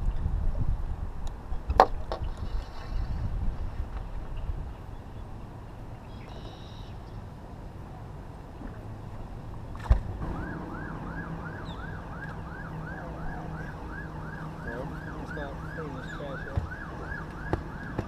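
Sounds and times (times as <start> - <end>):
steady low hum: 7.0 - 18.0
siren wailing: 10.2 - 18.0.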